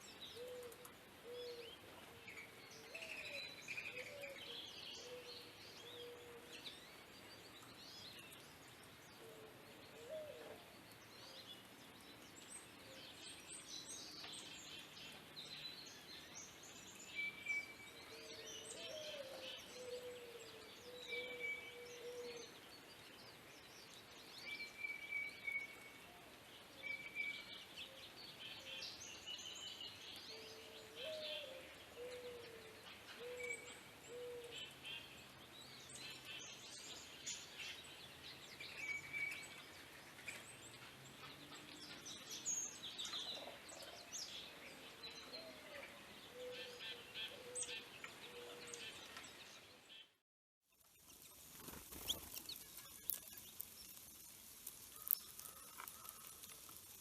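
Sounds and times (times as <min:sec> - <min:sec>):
songbirds calling: 0:00.0 - 0:50.2, 0:50.8 - 0:57.0
faint outdoor background noise: 0:00.0 - 0:57.0.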